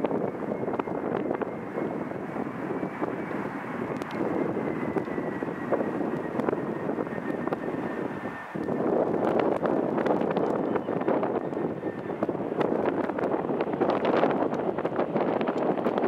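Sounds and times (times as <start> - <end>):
faint high engine whine: 0.0 - 16.0
jet engines roaring: 0.0 - 16.0.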